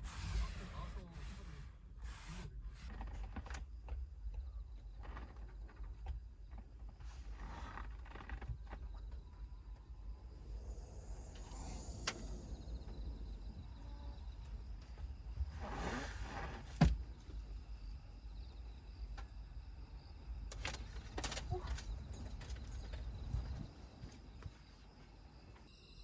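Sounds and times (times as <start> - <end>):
steady low rumble: 9.0 - 15.6.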